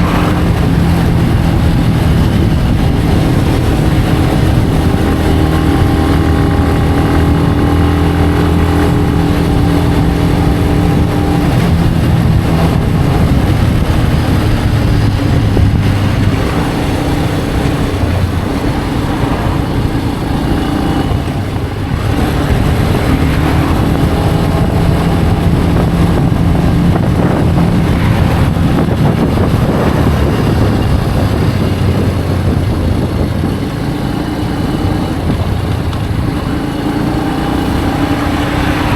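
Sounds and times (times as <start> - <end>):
motorcycle engine running: 0.0 - 38.9
steady rushing noise: 0.0 - 38.9.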